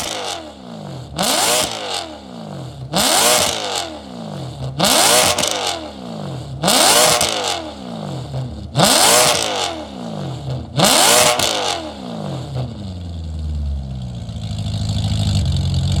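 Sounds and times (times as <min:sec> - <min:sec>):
car engine revving: 0:00.0 - 0:16.0
engine idling: 0:12.2 - 0:16.0.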